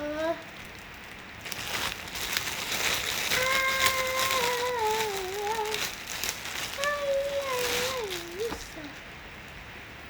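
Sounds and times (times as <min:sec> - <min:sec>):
child humming: 0:00.0 - 0:00.4, 0:03.3 - 0:05.9
plastic and cloth rustling: 0:00.0 - 0:09.6.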